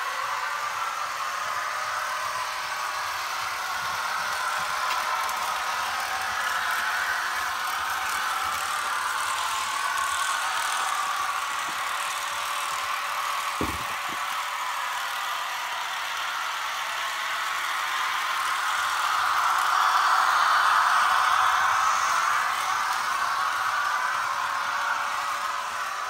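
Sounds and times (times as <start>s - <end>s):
model train whirring rumble: 0.0s - 26.0s.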